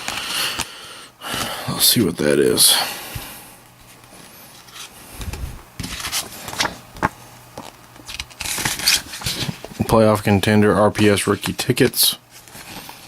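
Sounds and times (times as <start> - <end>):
cards rustling and clicking: 4.1 - 9.8.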